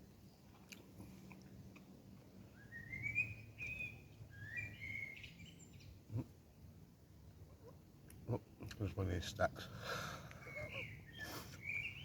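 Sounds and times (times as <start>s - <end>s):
bird singing whistled phrases: 2.5s - 5.6s, 10.5s - 12.0s.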